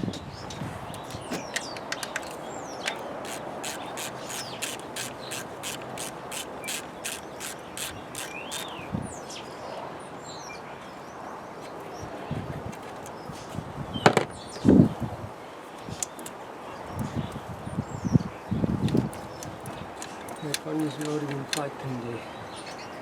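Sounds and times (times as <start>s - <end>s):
birds chirping: 0.0s - 15.0s, 15.6s - 23.0s
ratchet wrench clicking: 1.0s - 8.8s, 18.9s - 21.6s.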